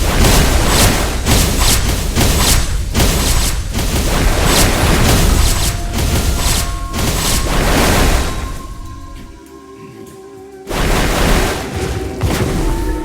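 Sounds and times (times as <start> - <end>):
dense rumbling: 0.0 - 9.4
heavy booms and crashes: 0.0 - 9.4, 10.7 - 13.0
faint music: 3.8 - 13.0.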